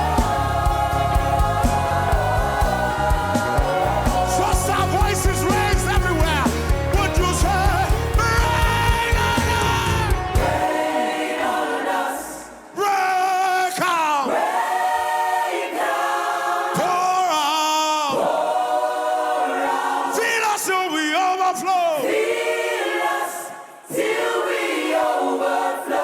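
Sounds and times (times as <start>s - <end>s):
band beat: 0.0s - 10.8s
gospel choir singing: 0.0s - 26.0s.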